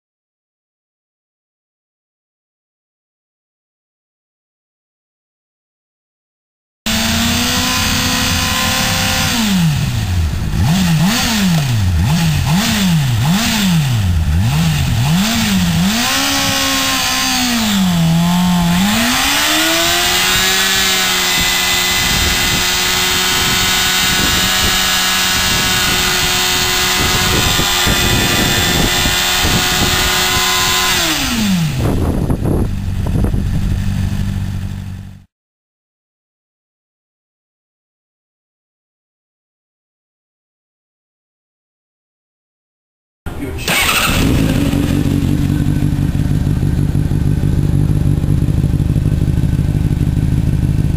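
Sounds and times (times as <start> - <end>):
motorcycle engine revving: 6.9 - 35.3, 43.3 - 50.9.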